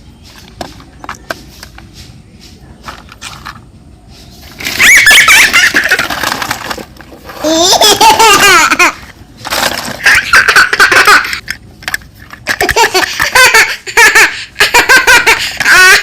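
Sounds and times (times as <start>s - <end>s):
small child laughing: 4.6s - 6.8s, 7.4s - 9.1s, 9.8s - 11.5s, 12.4s - 16.0s.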